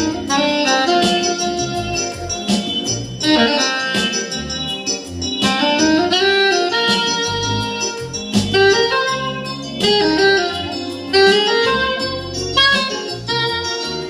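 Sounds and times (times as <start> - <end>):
bass line: 0.0 - 14.0
held melody line: 0.0 - 14.0
keyboard chords: 0.0 - 14.0.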